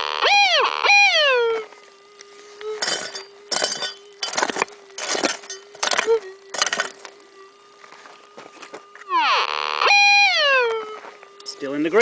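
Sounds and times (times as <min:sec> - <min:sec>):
falling wailing tone: 0:00.0 - 0:12.0
metal detector hum: 0:00.0 - 0:12.0
pick striking stony ground: 0:02.8 - 0:07.0.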